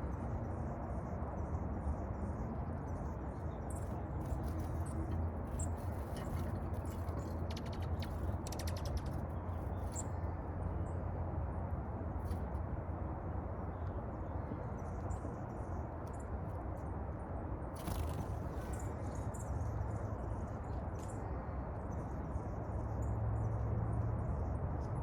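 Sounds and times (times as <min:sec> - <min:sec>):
low background rumble: 0:00.9 - 0:24.9
small birds chirping: 0:02.8 - 0:11.0, 0:17.8 - 0:21.3
rapid ticking bird calls: 0:03.4 - 0:10.2.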